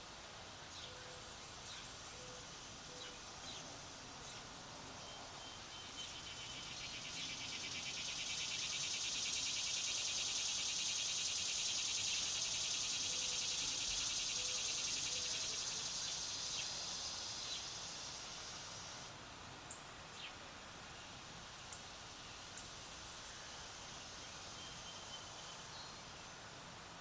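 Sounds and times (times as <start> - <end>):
faint bird chirps: 0.8 - 17.8, 24.3 - 26.1
cicada buzzing: 5.6 - 19.1.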